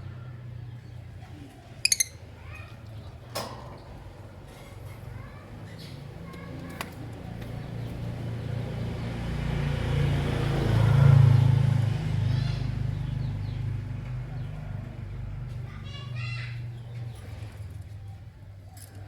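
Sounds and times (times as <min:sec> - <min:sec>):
passing vehicle engine rumble: 0:00.0 - 0:18.6
faint bird chirps: 0:01.8 - 0:02.6.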